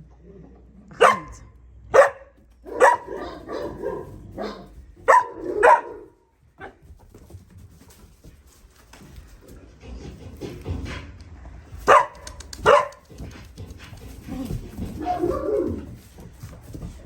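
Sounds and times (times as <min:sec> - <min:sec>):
puppy barking and yelping: 0:02.0 - 0:06.2, 0:11.8 - 0:13.2, 0:14.8 - 0:16.0.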